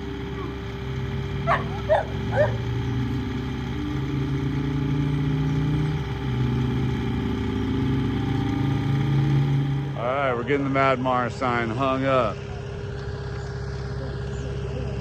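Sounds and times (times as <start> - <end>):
skid steer engine running: 0.0 - 15.0
dog barking: 0.3 - 0.6, 1.4 - 2.7.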